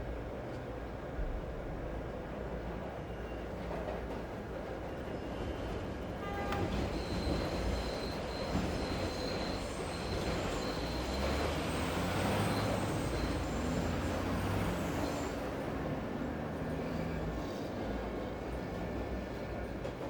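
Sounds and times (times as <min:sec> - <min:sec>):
train rumbling past: 0:00.1 - 0:20.0
high wheel squeal: 0:06.7 - 0:15.6.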